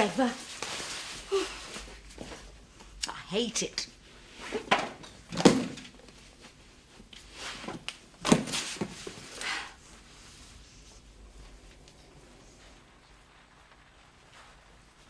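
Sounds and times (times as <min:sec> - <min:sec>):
knocks and thuds of handled objects: 0:04.5 - 0:06.0, 0:07.6 - 0:09.2.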